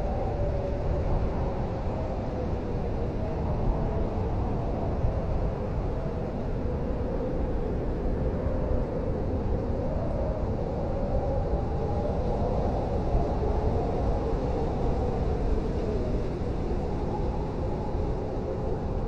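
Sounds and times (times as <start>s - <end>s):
blizzard wind blowing: 0.0s - 19.0s.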